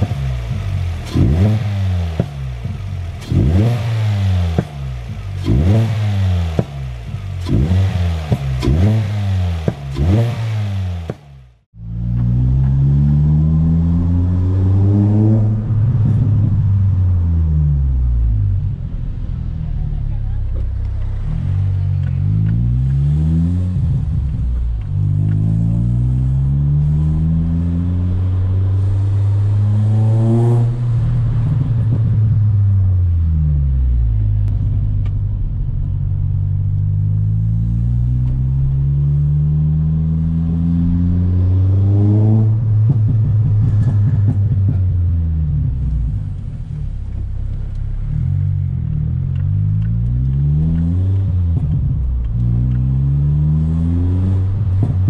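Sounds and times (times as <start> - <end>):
car engine accelerating through gears: 0.0 - 55.0.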